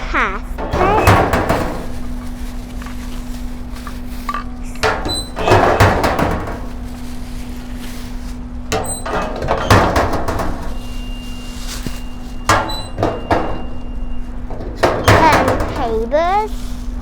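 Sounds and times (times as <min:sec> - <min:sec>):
knocks and clattering thuds: 0:00.4 - 0:11.0, 0:11.7 - 0:16.5.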